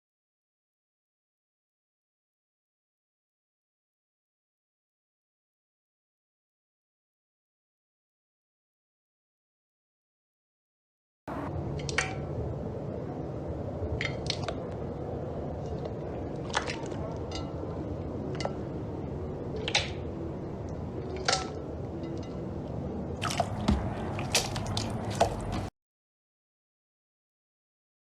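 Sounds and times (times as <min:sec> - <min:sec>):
low background hum: 0:11.3 - 0:25.7
slime squelching: 0:23.2 - 0:25.7.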